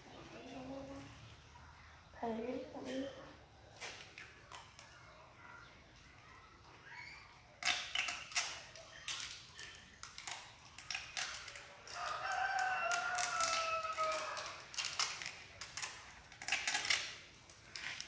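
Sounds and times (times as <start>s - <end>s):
tape and plastic card crackling: 7.6s - 18.0s
rooster crowing: 11.9s - 14.7s.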